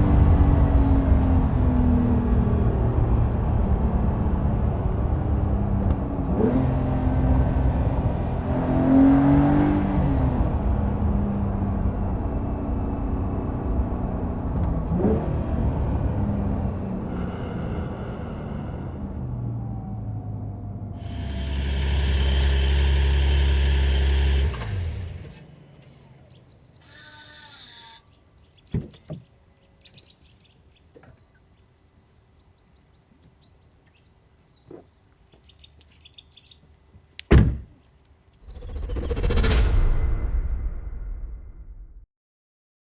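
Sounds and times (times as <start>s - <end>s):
car engine droning: 0.0s - 28.0s
birds chirping: 25.4s - 39.0s
sharp thunks: 37.3s - 37.8s.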